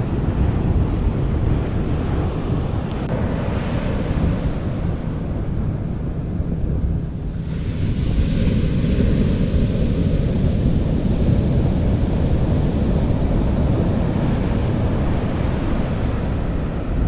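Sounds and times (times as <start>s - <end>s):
wind rumbling on microphone: 0.0s - 17.0s
sea waves washing onto beach: 7.1s - 17.0s.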